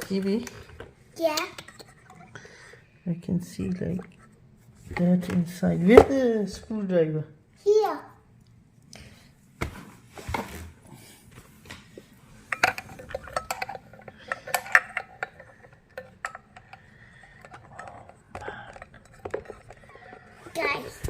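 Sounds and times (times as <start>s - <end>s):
screwdriver and parts clinking: 12.5s - 21.0s.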